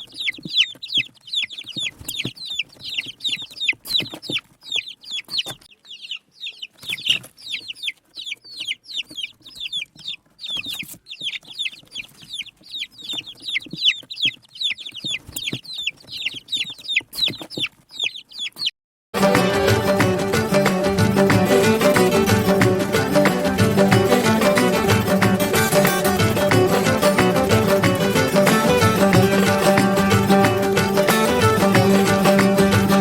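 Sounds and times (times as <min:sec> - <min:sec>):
small birds chirping: 0:00.0 - 0:18.8.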